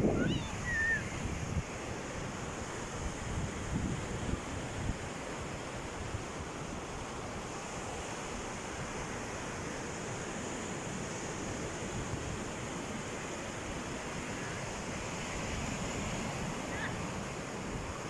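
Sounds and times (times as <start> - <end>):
wind on microphone: 0.0 - 5.2
sea waves washing ashore: 0.0 - 18.0.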